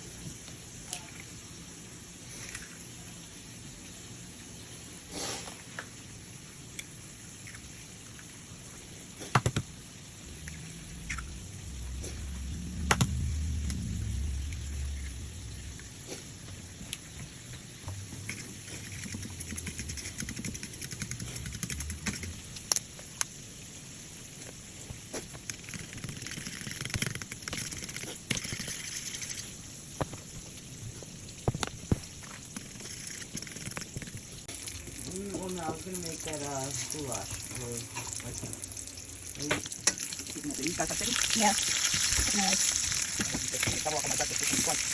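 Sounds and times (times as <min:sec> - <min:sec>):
low hum: 0:09.7 - 0:23.4
food sizzling in a frying pan: 0:28.4 - 0:44.9.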